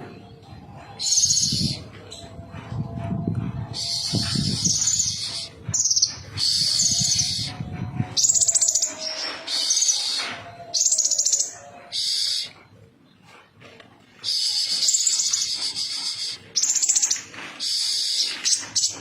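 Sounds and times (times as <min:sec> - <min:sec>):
small bird singing trills: 0:00.9 - 0:02.3, 0:03.7 - 0:12.5, 0:14.3 - 0:19.0.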